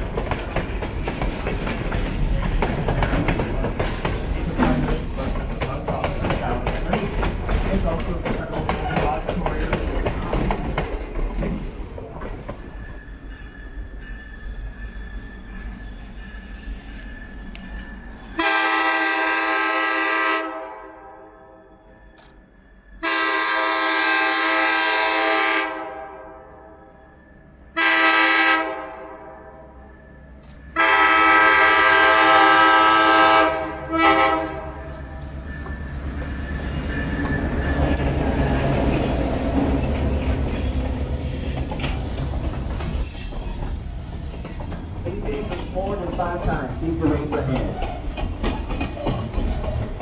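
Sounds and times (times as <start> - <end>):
train rumbling past: 0.0 - 50.0
locomotive air horn: 18.4 - 21.6, 23.0 - 26.6, 27.7 - 29.8, 30.7 - 34.8.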